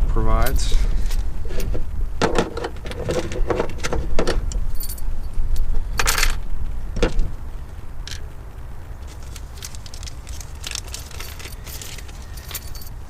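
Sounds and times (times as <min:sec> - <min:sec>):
small metal clips clinking: 0:09.1 - 0:13.0.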